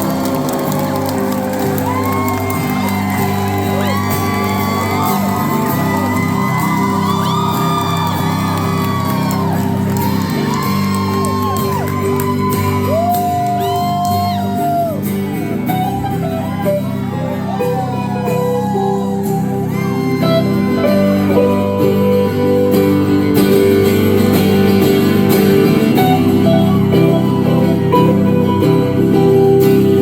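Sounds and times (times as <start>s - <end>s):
audience shouting and whooping: 0.0s - 21.2s
live rock band playing: 0.0s - 30.0s.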